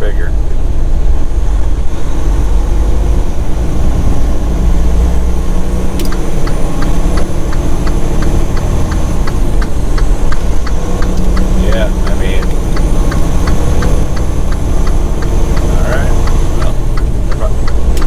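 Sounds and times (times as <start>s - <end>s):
diesel truck engine rumble: 0.0s - 18.0s
even ticking: 2.9s - 18.0s
click: 6.0s - 6.6s.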